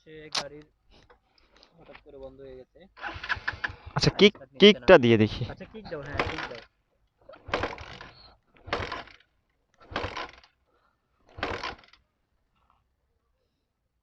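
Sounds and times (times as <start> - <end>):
motorcycle kick-starter clatter: 5.9 - 10.6, 11.3 - 12.1.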